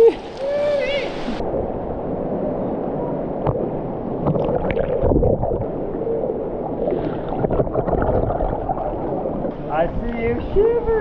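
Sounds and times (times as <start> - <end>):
water splashes: 0.0 - 10.3
river water sloshing and gurgling: 3.4 - 9.8.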